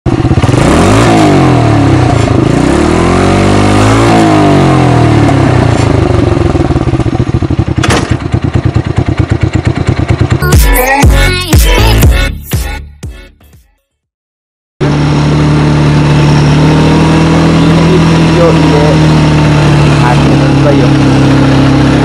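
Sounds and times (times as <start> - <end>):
atv engine revving: 0.1 - 10.5, 14.8 - 22.0
sharp exhaust pop: 7.8 - 8.4.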